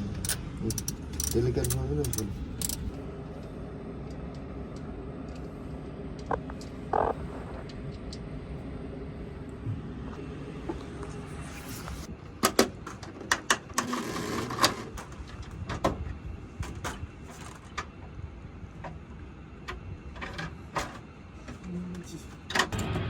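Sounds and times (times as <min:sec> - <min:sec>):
low rumble: 0:02.0 - 0:12.1, 0:22.7 - 0:23.0.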